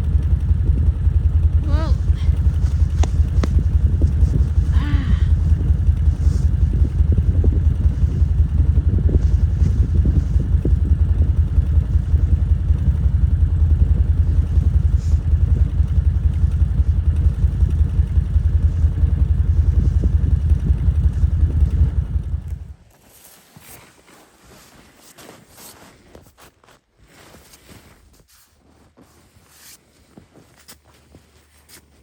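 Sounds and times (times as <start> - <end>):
utility vehicle engine rumbling: 0.0 - 22.8.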